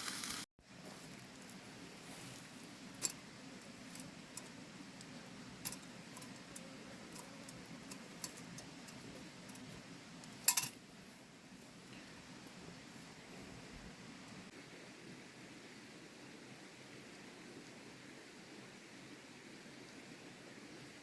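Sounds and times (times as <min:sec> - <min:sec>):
sharp light clicks and clinks: 0:03.0 - 0:10.8.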